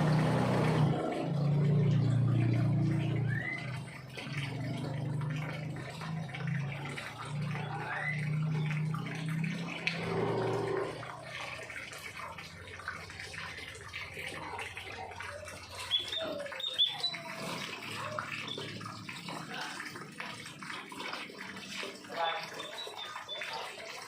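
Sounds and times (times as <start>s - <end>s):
small birds chirping: 15.8s - 18.8s.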